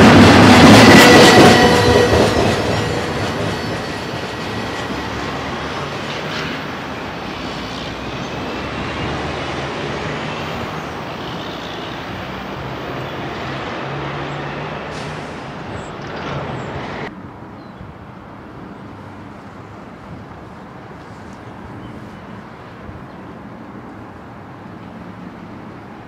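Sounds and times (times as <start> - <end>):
freight train wheel noise: 0.0 - 17.1.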